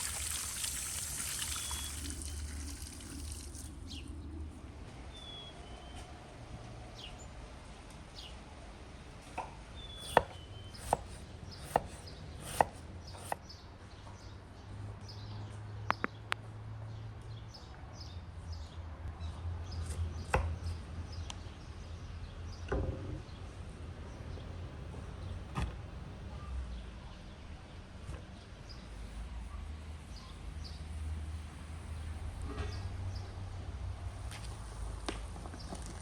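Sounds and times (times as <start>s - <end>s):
faint birds chirping: 0.0s - 6.2s, 8.0s - 25.5s, 26.3s - 31.1s
knife chopping on wooden board: 9.4s - 13.4s.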